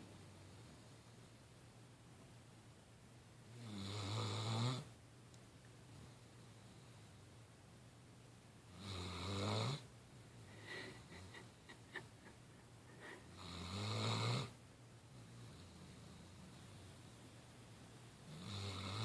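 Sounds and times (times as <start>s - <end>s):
dog snoring: 3.5s - 4.9s, 8.7s - 9.9s, 13.3s - 16.8s, 18.3s - 19.0s.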